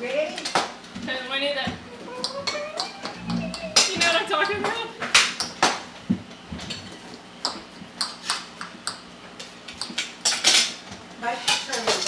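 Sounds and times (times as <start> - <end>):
utensils and dishes clinking: 9.8 - 12.0.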